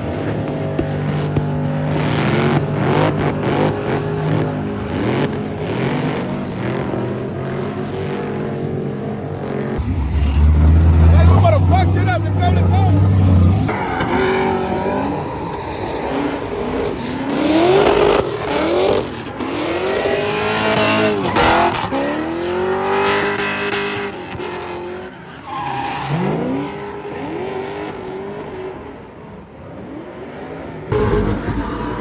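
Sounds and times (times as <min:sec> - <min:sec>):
tires squealing: 0:00.0 - 0:32.0
truck engine revving: 0:09.5 - 0:24.2, 0:30.9 - 0:32.0.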